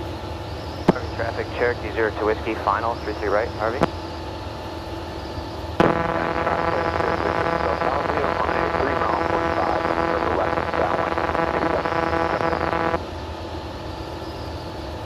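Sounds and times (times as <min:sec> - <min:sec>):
light aircraft engine droning: 0:00.0 - 0:15.0
buzzing radio transmission: 0:00.8 - 0:04.2, 0:05.8 - 0:13.4
garbled radio voice: 0:00.9 - 0:03.9, 0:05.8 - 0:13.0.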